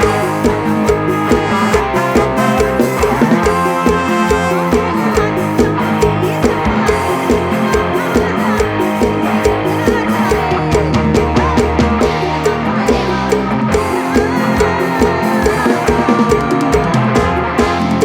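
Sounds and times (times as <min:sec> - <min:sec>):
bass: 0:00.0 - 0:18.0
drum kit beat: 0:00.0 - 0:18.0
plucked guitar melody: 0:00.0 - 0:18.0.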